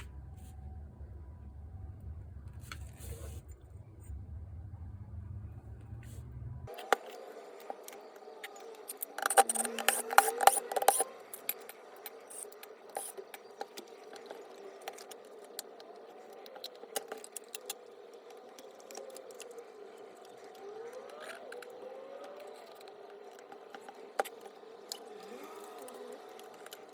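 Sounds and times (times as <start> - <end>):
tools and parts clicking: 6.7 - 15.8.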